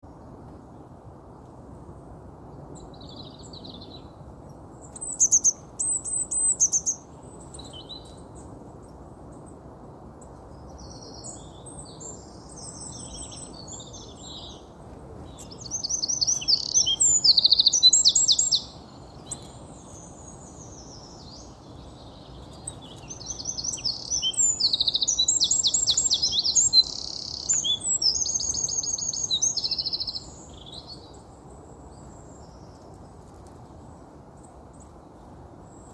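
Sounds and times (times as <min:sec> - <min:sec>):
low hiss: 0:00.1 - 0:35.9
finch twittering song: 0:04.8 - 0:08.5, 0:10.6 - 0:31.2.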